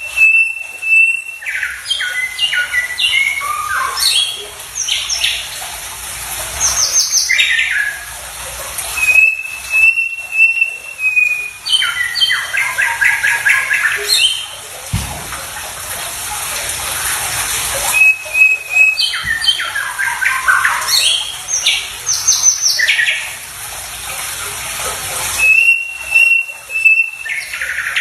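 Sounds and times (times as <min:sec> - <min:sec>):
songbird whistles and chirps: 0:00.0 - 0:04.4, 0:09.0 - 0:14.4, 0:17.9 - 0:23.2, 0:25.4 - 0:28.0.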